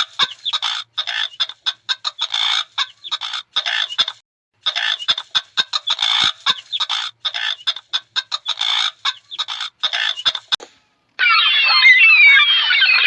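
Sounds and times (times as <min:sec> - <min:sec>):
longer animal calls: 0:11.2 - 0:13.0.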